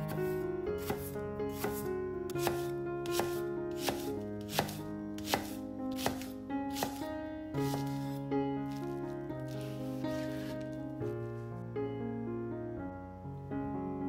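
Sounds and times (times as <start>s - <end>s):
background music with held notes: 0.0s - 14.0s
knife chopping on cutting board: 0.8s - 7.0s, 7.6s - 8.0s.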